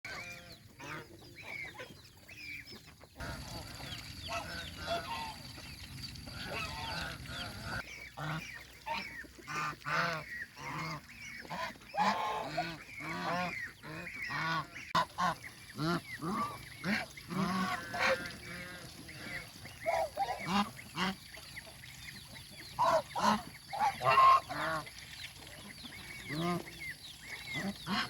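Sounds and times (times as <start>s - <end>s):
geese honking: 3.2s - 21.3s, 22.7s - 25.0s.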